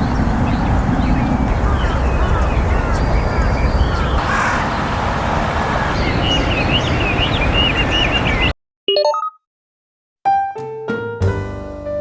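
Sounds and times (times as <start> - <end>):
small bird chirping: 5.8 - 8.5.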